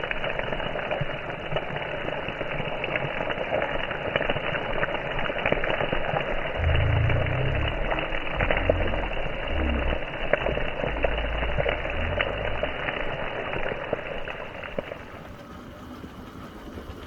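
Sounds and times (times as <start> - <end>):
fish sizzling in hot oil: 0.0 - 16.0
low rumble: 6.3 - 15.2.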